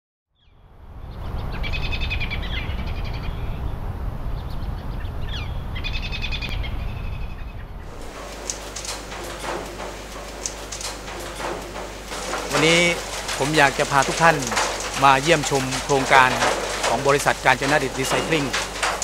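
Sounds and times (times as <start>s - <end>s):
birds singing: 0.4s - 8.6s.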